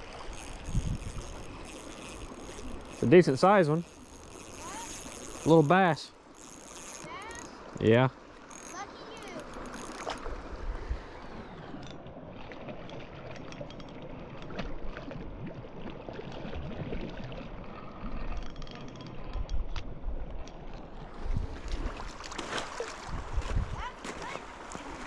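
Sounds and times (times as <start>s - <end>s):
wind buffeting microphone: 0.0s - 3.1s, 23.0s - 24.0s
flowing creek: 0.0s - 25.0s
small clicks: 0.3s - 5.8s, 6.4s - 7.8s, 8.4s - 10.4s.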